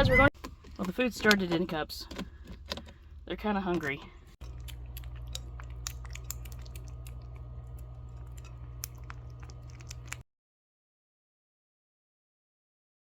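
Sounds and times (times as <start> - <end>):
kittens chewing and lapping: 0.3 - 10.2
steady low hum: 2.2 - 10.2.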